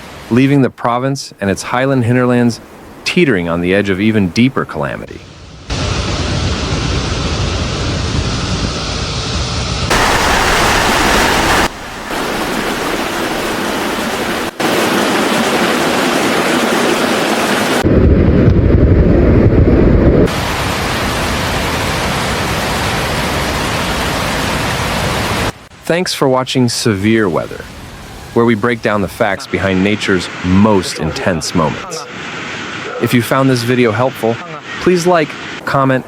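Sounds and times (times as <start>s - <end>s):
rushing flood water: 9.9s - 17.9s, 20.3s - 35.8s
deep rumble: 17.8s - 20.3s.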